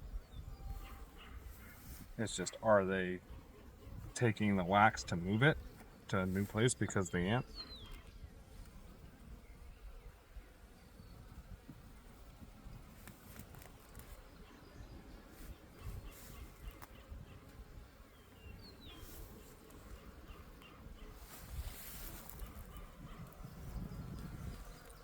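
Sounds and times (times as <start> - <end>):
bird chirp: 0.0 - 8.3, 13.9 - 25.0
bees buzzing: 0.3 - 25.0.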